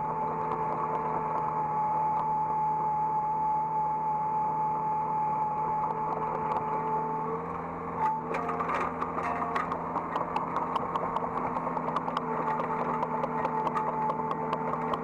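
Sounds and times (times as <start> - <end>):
hydraulic whine: 0.0 - 15.0
excavator diesel engine running: 5.6 - 15.0.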